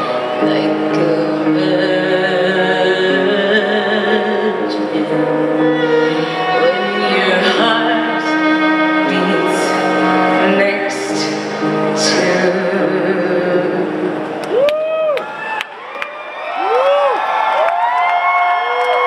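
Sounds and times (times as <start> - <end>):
sustained musical accompaniment: 0.0 - 14.7
person singing long notes: 0.0 - 15.2.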